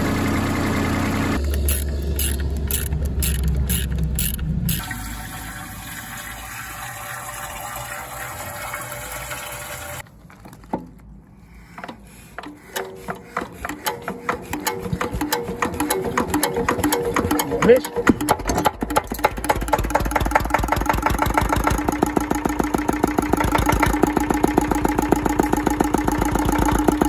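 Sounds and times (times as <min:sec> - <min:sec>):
diesel engine rumbling: 0:00.0 - 0:06.5, 0:11.5 - 0:27.0
engine firing knocks: 0:13.8 - 0:27.0.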